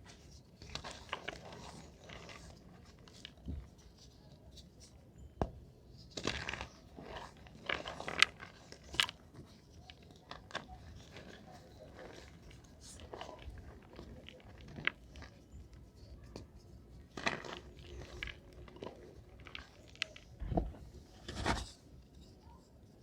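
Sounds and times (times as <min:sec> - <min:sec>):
chalk crunching and crumbling: 0:00.0 - 0:22.6
sharp chalk cracks: 0:16.3 - 0:22.4.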